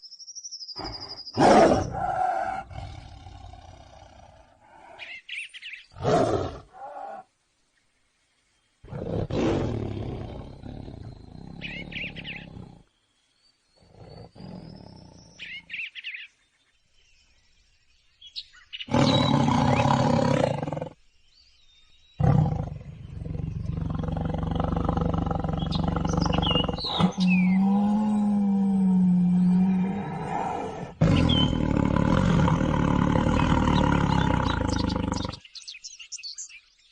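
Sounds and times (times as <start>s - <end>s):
bird chirps: 0.0s - 3.0s, 10.1s - 36.9s
tiger roaring and growling: 0.8s - 5.1s, 6.0s - 7.3s, 8.8s - 12.9s, 18.9s - 21.0s, 22.2s - 35.4s.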